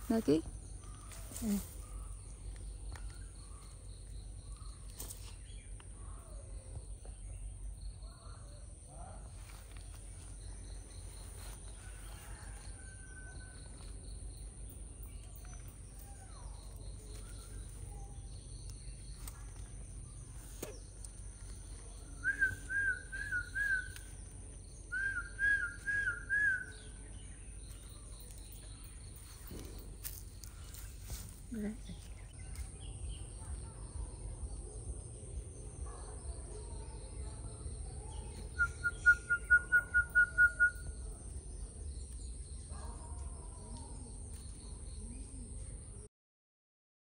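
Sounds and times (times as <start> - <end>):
birds chirping: 0.0 - 46.0
steady low rumble: 13.5 - 38.9.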